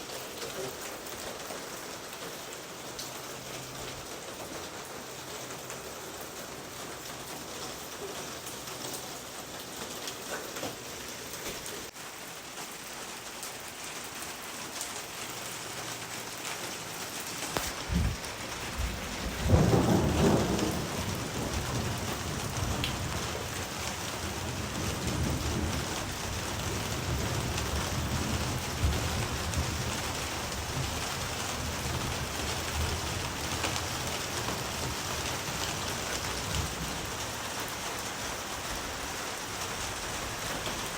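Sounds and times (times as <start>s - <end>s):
steady rain falling: 0.0s - 40.9s
thunder rumbling: 17.6s - 38.6s.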